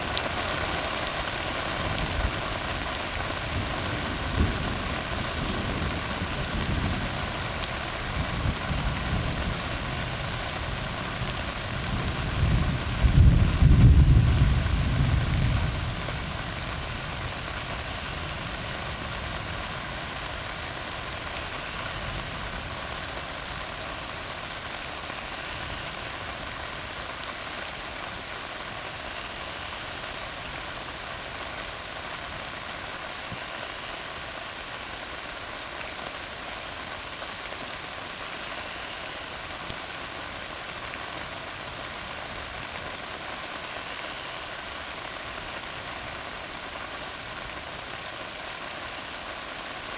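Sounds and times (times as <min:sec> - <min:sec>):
rain on a road: 0:00.0 - 0:49.9.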